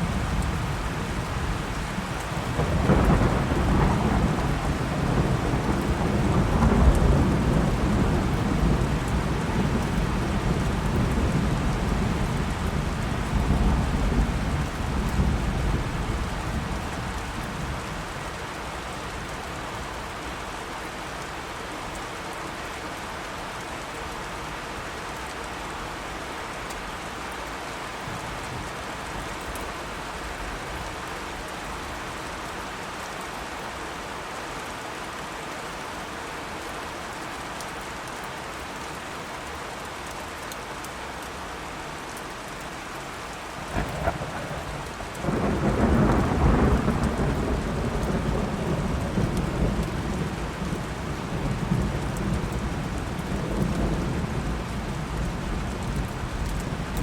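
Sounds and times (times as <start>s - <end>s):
thunder rumbling: 0.0s - 17.4s, 43.5s - 57.0s
heavy rain falling: 0.0s - 57.0s.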